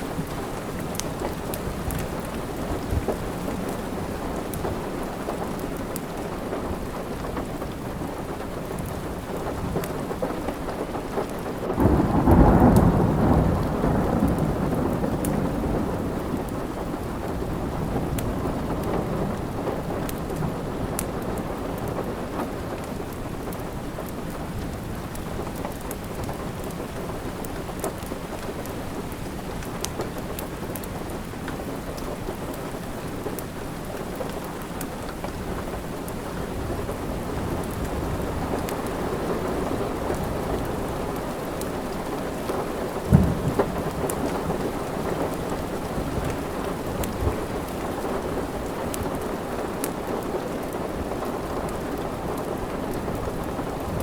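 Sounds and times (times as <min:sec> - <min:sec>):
fire crackling: 0:00.0 - 0:12.0, 0:20.1 - 0:54.0
steady rain hiss: 0:00.0 - 0:54.0.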